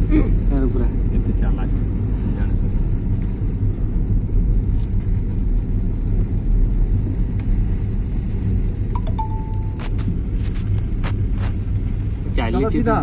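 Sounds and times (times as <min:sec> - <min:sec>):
vehicle engine and road noise: 0:00.0 - 0:13.0
brief high tone: 0:09.0 - 0:10.1.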